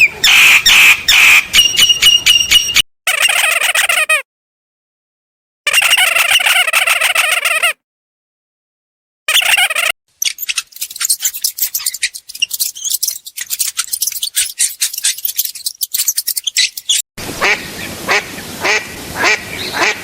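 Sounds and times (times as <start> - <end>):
sharp clicks and chirps: 9.3 - 17.1
duck quacking: 17.4 - 20.0.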